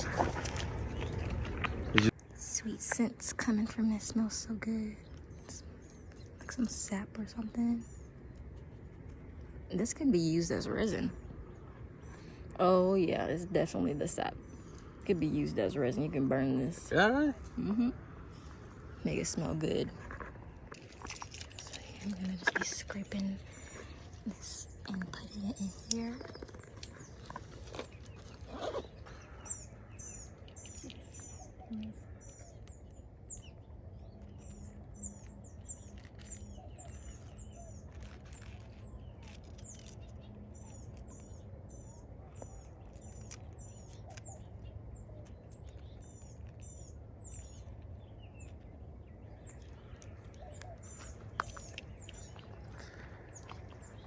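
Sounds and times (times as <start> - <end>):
small bird chirping: 0.0 - 54.0
scratching sounds: 8.0 - 9.7, 19.9 - 31.4, 34.2 - 41.4, 42.3 - 46.7.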